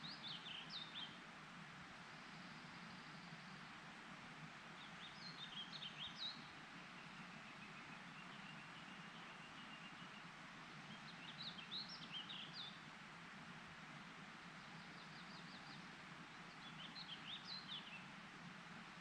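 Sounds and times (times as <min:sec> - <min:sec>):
songbird singing: 0:00.0 - 0:01.2, 0:02.1 - 0:03.8, 0:04.8 - 0:12.9, 0:14.5 - 0:18.2
faint steady hiss: 0:00.0 - 0:19.0.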